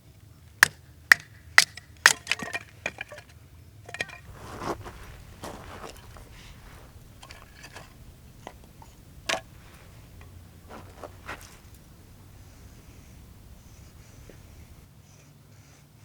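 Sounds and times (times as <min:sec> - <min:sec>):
objects being handled clicking: 0:03.9 - 0:14.9.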